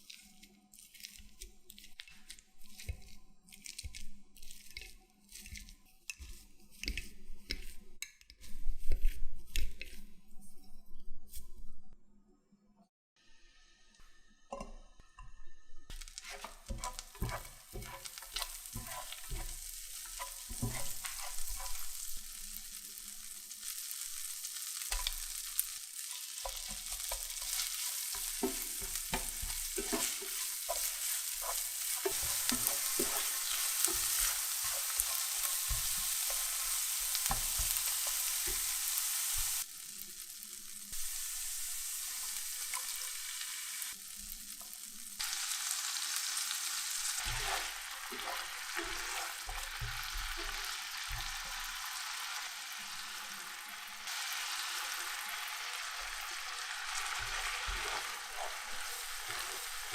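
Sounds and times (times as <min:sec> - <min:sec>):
utensil clinking and scraping pan: 0:15.9 - 0:22.2, 0:24.9 - 0:39.6, 0:47.1 - 0:51.8, 0:55.9 - 0:59.9
food sizzling in oil: 0:15.9 - 0:59.9.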